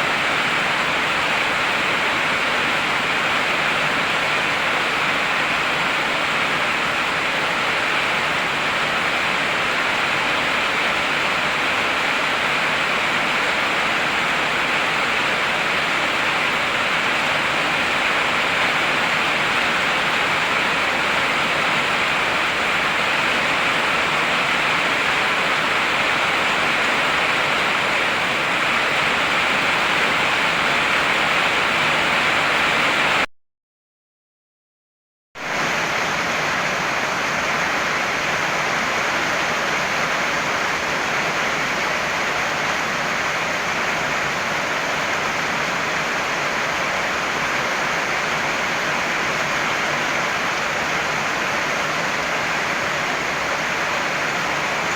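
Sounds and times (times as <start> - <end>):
heavy rainfall: 0.0 - 33.3, 35.4 - 54.9.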